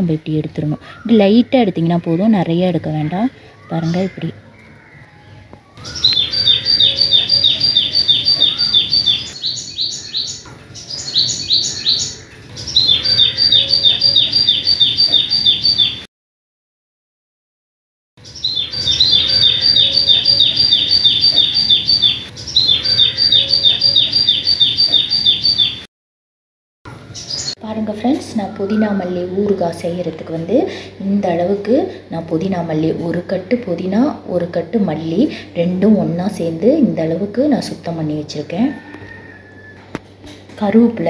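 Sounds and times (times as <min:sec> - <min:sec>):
bird chirping rapidly: 0:05.8 - 0:16.1, 0:18.2 - 0:25.9.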